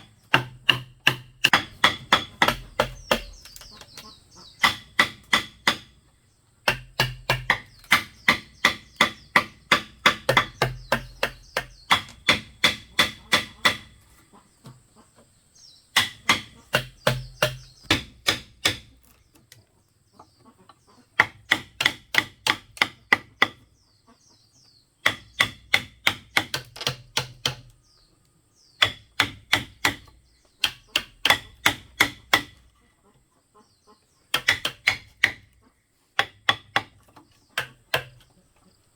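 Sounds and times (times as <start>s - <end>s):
tool striking bamboo with ringing: 0.3s - 3.9s, 4.6s - 6.0s, 6.6s - 14.0s, 16.0s - 19.0s, 21.2s - 23.6s, 25.0s - 27.7s, 28.8s - 32.6s, 34.3s - 35.5s, 36.2s - 37.0s, 37.6s - 38.2s.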